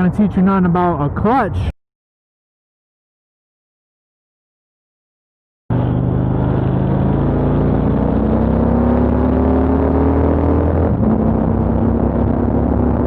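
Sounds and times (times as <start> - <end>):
motorcycle engine accelerating: 5.7 - 13.0.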